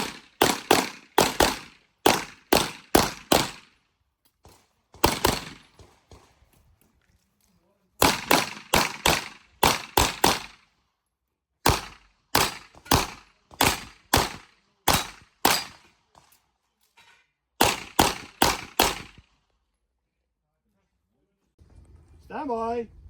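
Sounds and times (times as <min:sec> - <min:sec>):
pistol gunshots: 0:00.0 - 0:03.8, 0:04.9 - 0:06.3, 0:08.0 - 0:10.6, 0:11.6 - 0:15.9, 0:17.6 - 0:19.3.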